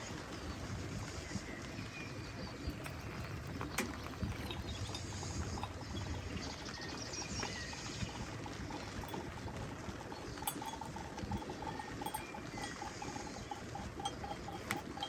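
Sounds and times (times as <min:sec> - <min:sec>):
water drips tapping: 0:02.4 - 0:15.0.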